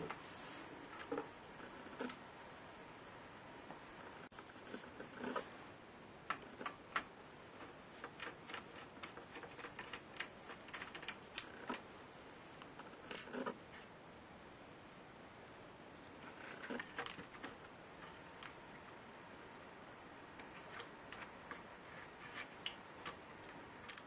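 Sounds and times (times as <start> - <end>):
scraping rustles: 4.2 - 5.7, 16.1 - 18.6, 20.4 - 24.0
small parts and tools clicking: 6.3 - 11.9, 22.3 - 24.0.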